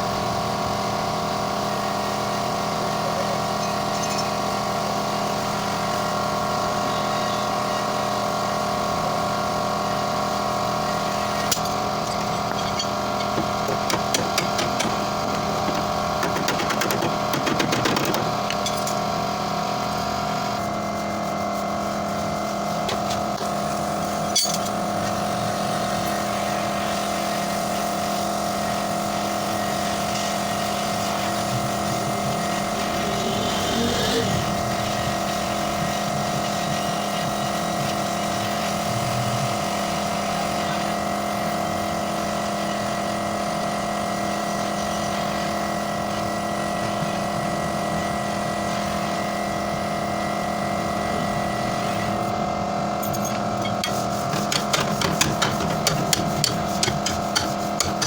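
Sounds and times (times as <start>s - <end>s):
machine motor humming: 10.8s - 19.1s, 29.4s - 36.8s.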